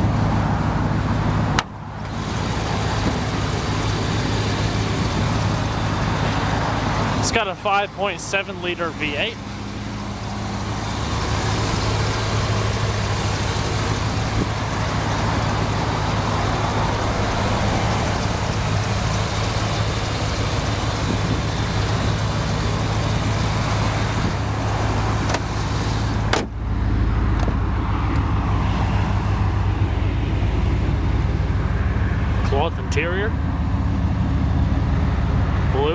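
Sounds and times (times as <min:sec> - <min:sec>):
engine idling: 0:00.8 - 0:28.3.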